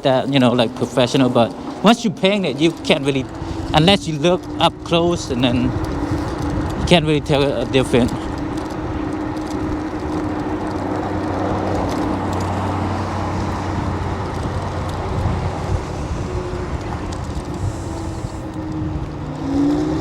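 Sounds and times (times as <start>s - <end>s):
electric scooter motor hum: 0.0s - 20.0s
wind rushing: 12.8s - 19.7s.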